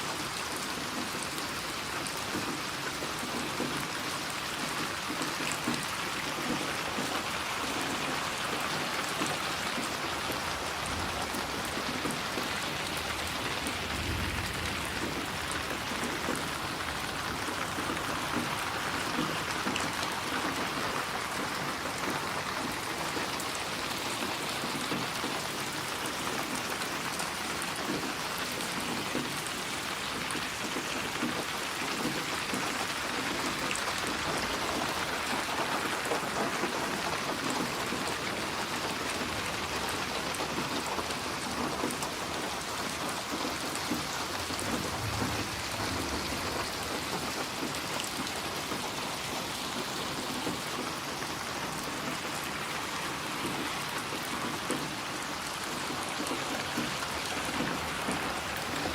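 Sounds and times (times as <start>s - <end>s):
steady rain hissing: 0.0s - 58.9s
faint low rumble: 44.6s - 47.2s.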